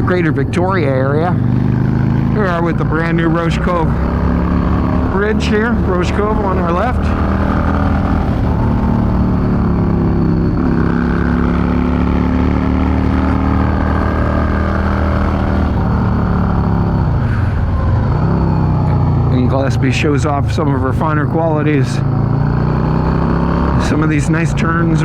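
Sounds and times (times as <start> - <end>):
motorcycle engine cruising: 0.0 - 25.0.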